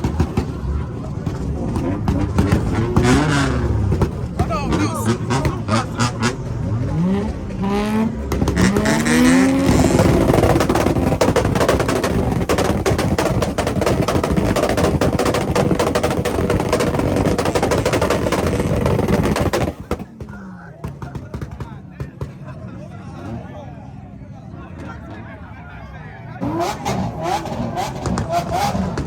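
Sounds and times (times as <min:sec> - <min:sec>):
exhaust pops and bangs: 0:00.0 - 0:22.6, 0:26.4 - 0:29.0
car engine revving: 0:00.0 - 0:24.1, 0:26.3 - 0:29.0.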